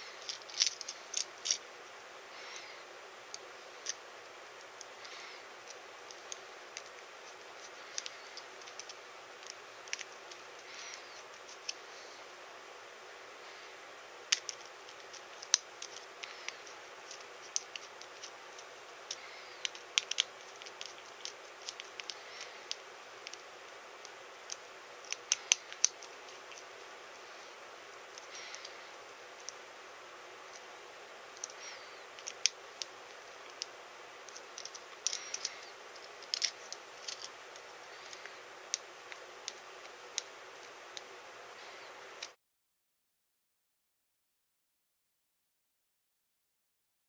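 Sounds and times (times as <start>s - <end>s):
plastic parts scraping: 0.0s - 1.6s, 4.8s - 11.8s, 14.3s - 23.4s, 31.4s - 40.7s
faint steady hiss: 0.0s - 42.4s
plastic parts clicking and tapping: 0.2s - 1.6s, 7.6s - 11.8s, 14.3s - 23.4s, 32.2s - 33.7s, 34.3s - 41.1s.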